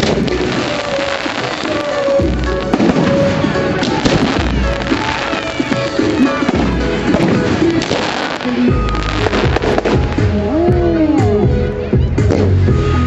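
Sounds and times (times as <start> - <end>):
firework shells booming: 0.0 - 10.4
firework bangs and crackles: 0.0 - 11.4, 12.0 - 13.0
loud music: 0.0 - 13.0.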